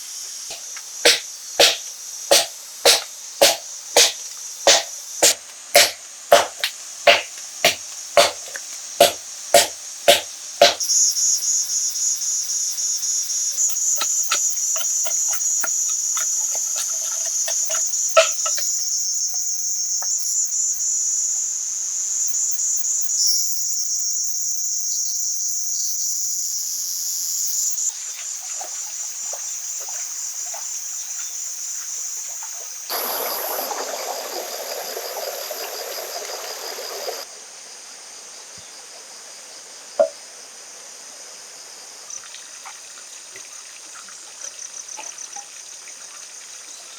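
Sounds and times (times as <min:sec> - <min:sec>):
insect chorus buzzing: 0:00.0 - 0:46.9
light taps and knocks: 0:01.1 - 0:10.8.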